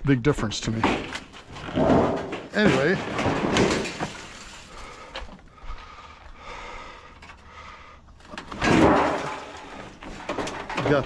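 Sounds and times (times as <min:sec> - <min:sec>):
scrap scraping onto trailer: 0:00.8 - 0:05.2, 0:08.2 - 0:11.0.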